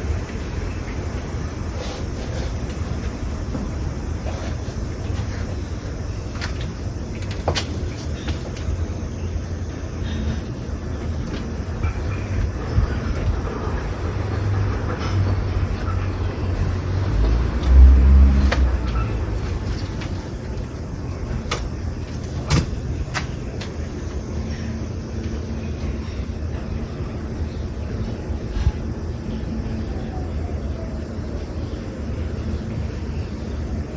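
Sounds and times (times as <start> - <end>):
traffic engine rumble: 0.0 - 33.9
vehicle passing close: 13.6 - 20.2.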